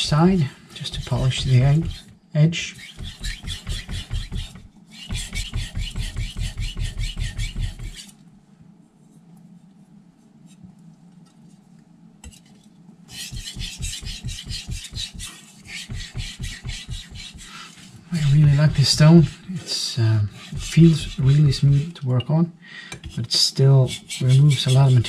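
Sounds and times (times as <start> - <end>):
knife rasping on whetstone: 0.0 - 2.1, 2.7 - 8.1, 13.1 - 19.5, 20.2 - 21.9, 23.8 - 25.0.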